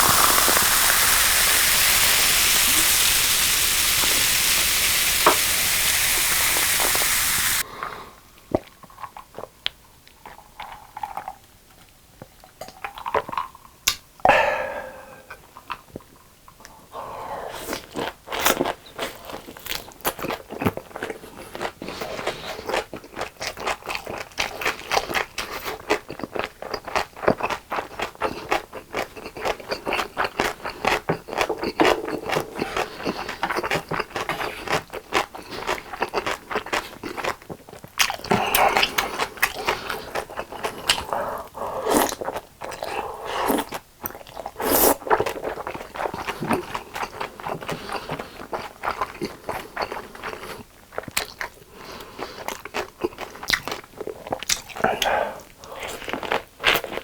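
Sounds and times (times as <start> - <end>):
wet chewing mouth clicks: 17.7 - 57.0.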